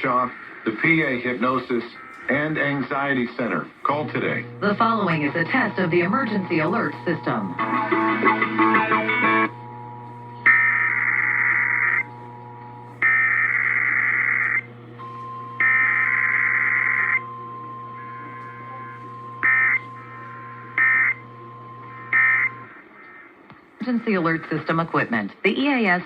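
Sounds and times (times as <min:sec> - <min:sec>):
steady low hum: 0:00.0 - 0:25.3
buzzy digital data bursts: 0:10.4 - 0:14.7, 0:15.6 - 0:17.2, 0:19.4 - 0:21.2, 0:21.8 - 0:22.7.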